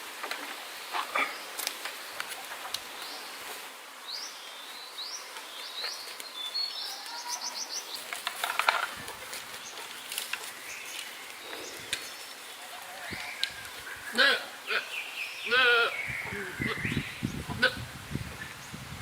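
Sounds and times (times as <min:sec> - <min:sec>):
bird chirping: 0:04.0 - 0:17.6.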